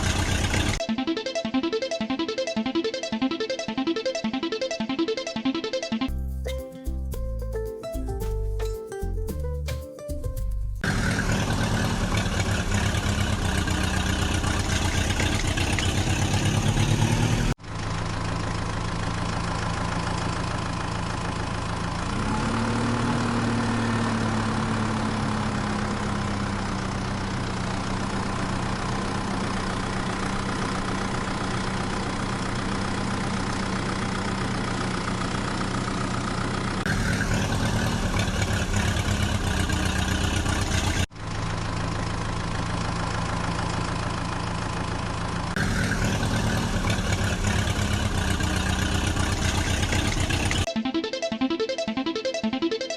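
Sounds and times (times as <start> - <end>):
diesel engine idling: 0.0 - 0.8, 10.8 - 50.7.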